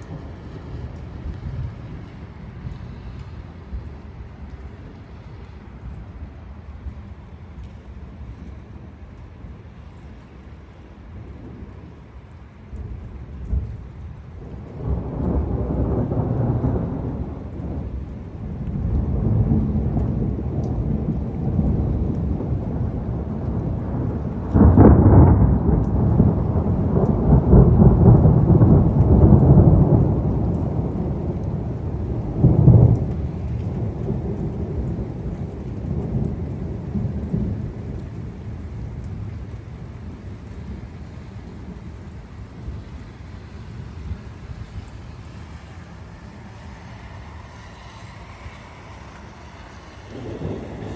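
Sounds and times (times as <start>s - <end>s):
rain falling: 0.0s - 50.9s
thunder clap: 14.4s - 40.8s, 50.0s - 50.9s
thunder rolling: 14.4s - 42.9s, 50.0s - 50.9s.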